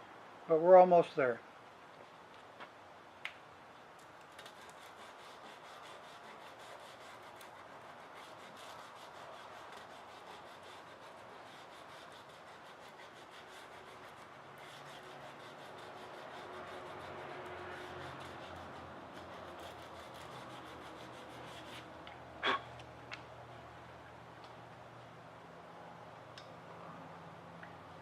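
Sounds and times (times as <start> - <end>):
sandpaper rubbing on wood: 4.4 - 21.9.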